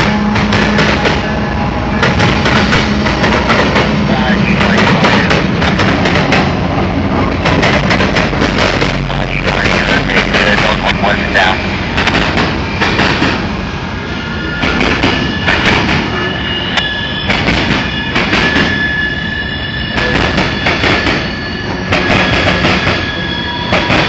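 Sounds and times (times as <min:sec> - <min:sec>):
wheels clattering on rail: 0:00.0 - 0:10.4, 0:14.6 - 0:16.2
freight train rolling by: 0:00.0 - 0:24.0
train wheels squealing: 0:14.1 - 0:24.0.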